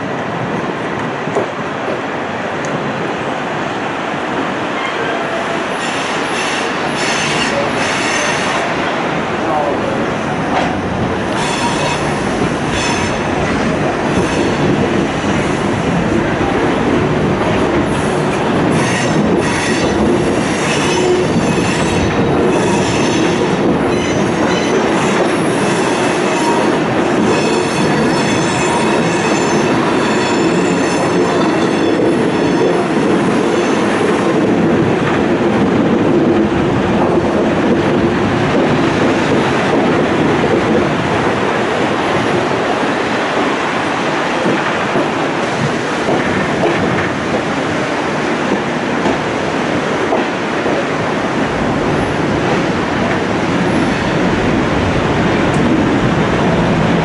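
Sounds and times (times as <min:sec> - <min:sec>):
train wheels rumbling on rail: 0:00.0 - 0:57.0
high wheel squeal: 0:11.4 - 0:13.2.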